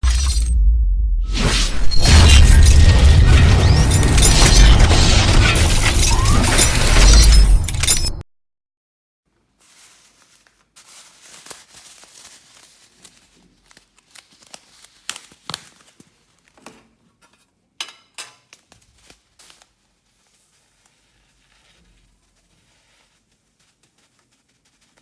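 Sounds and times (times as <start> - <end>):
rustling and crinkling: 9.3 - 17.6, 18.5 - 25.0.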